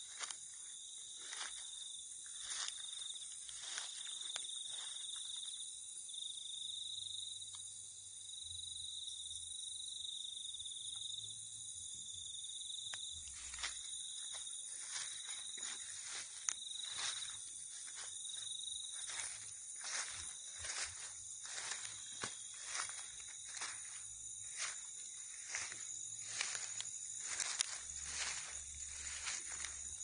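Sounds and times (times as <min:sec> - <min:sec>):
insect high-pitched trill: 0:00.0 - 0:30.0
insects hissing: 0:09.8 - 0:30.0.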